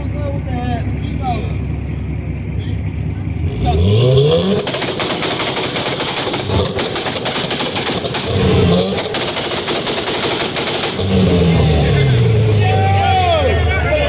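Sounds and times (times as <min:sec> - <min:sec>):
car engine on launch limiter: 0:00.0 - 0:14.0
exhaust pops and bangs: 0:03.4 - 0:13.0.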